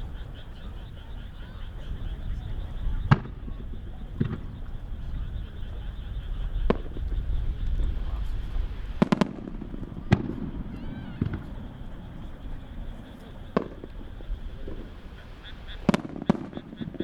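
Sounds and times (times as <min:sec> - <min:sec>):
low constant rumble: 0:00.0 - 0:17.0
firework shells banging: 0:03.1 - 0:05.1, 0:06.4 - 0:17.0.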